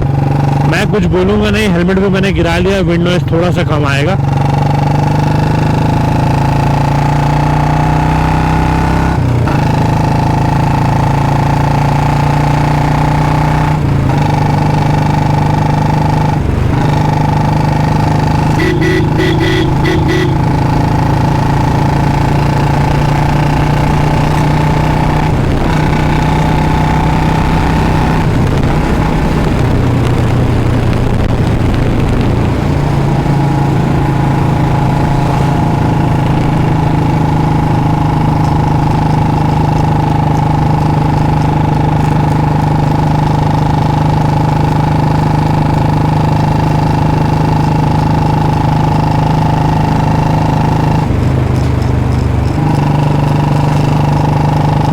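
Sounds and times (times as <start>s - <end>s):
loud motorcycle engine running: 0.0s - 54.9s.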